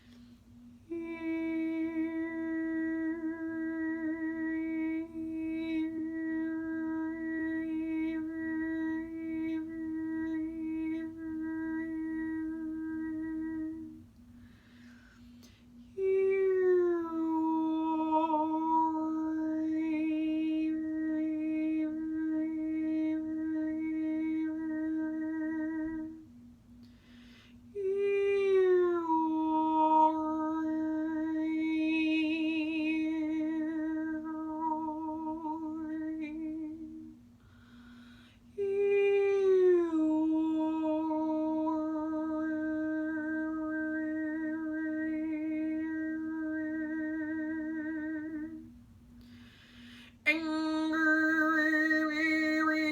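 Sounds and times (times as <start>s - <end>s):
faint pulsing low drone: 0.0s - 52.9s
woman overtone singing: 0.8s - 14.1s, 50.3s - 52.9s.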